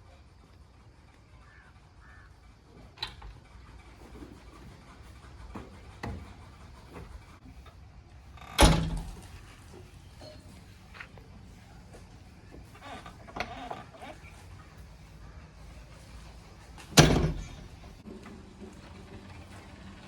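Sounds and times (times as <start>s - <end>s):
knocks and clunks: 4.0s - 7.8s, 8.4s - 10.4s, 16.6s - 19.8s.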